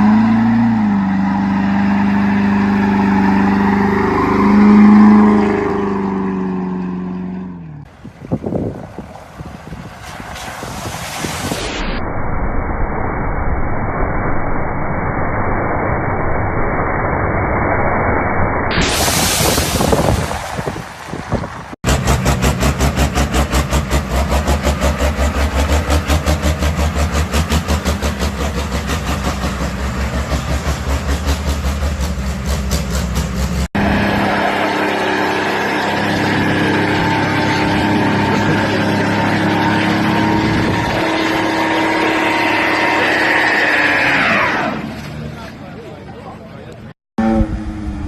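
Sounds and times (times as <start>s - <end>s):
diesel truck engine pulsing: 19.0s - 48.0s
higher engine note: 47.2s - 48.0s.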